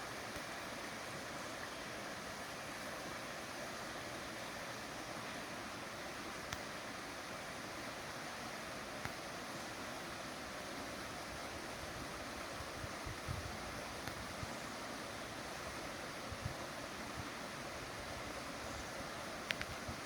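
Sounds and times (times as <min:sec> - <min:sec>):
rushing water: 0:00.0 - 0:20.0.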